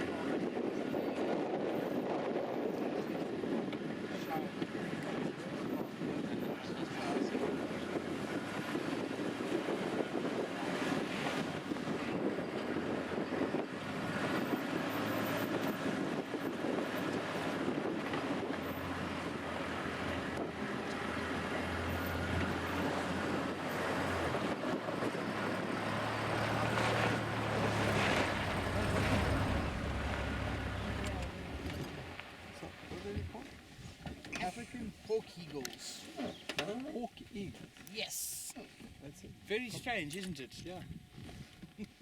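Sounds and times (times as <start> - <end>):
wind rushing over microphone: 0.0 - 34.0
vehicle engine droning: 5.6 - 34.4.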